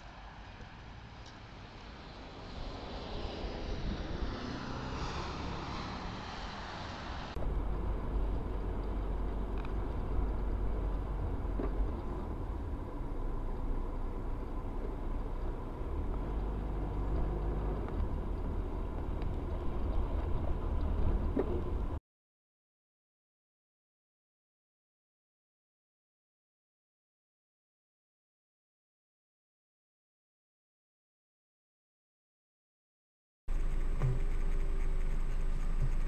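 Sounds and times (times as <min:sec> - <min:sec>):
car road and engine rumble: 0:00.0 - 0:22.0, 0:33.5 - 0:36.0.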